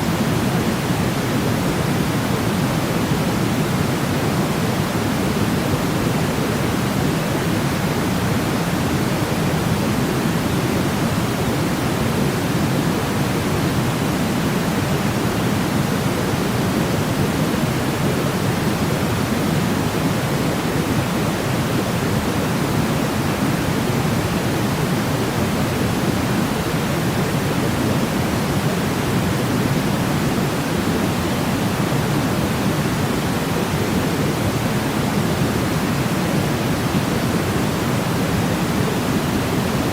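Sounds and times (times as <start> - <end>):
low white noise hiss: 0.0 - 39.9.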